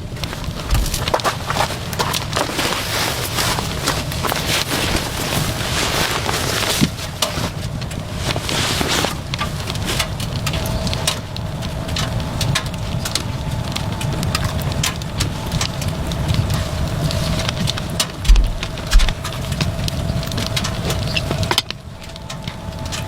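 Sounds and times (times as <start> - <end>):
faint steady hum: 0.0 - 23.0
low wind rumble: 0.0 - 23.0
rain ticking on tent: 0.0 - 23.0.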